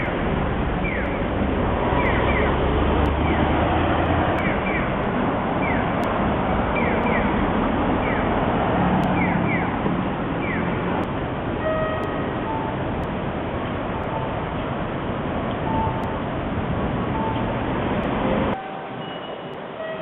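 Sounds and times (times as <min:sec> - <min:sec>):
subway train rushing: 0:00.0 - 0:20.0.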